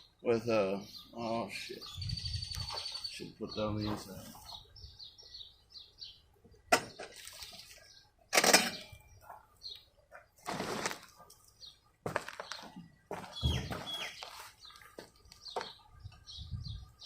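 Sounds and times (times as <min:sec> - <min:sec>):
small bird chirping: 0:00.8 - 0:08.2, 0:11.5 - 0:17.0.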